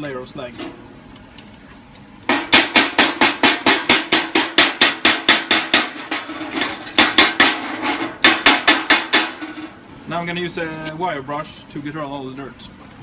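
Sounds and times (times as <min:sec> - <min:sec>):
chipping hammer striking metal: 0:02.3 - 0:09.7.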